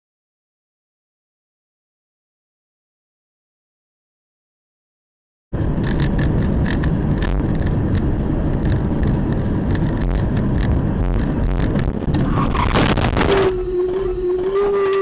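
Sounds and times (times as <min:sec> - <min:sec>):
sharp clicks and rattles: 0:05.6 - 0:13.5
car road and engine rumble: 0:05.6 - 0:15.0.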